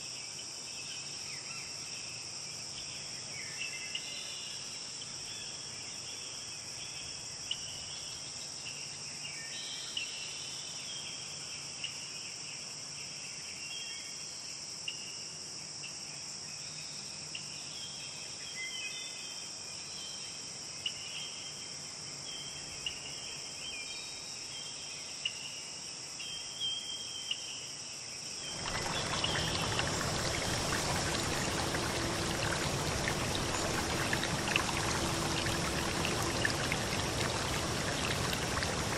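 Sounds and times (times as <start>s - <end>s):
insect chorus: 26.2s - 38.9s
running water rushing: 28.5s - 38.9s.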